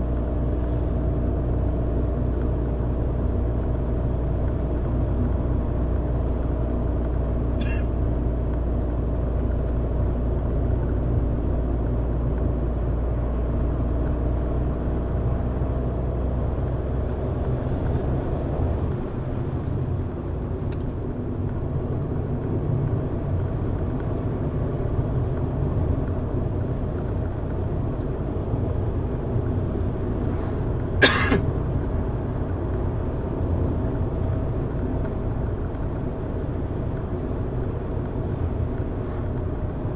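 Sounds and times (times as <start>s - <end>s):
car engine hum: 0.0s - 39.9s.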